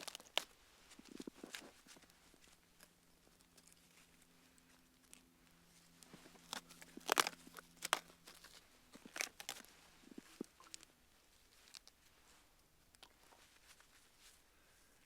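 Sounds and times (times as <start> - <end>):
campfire crackling and popping: 6.4 - 8.1.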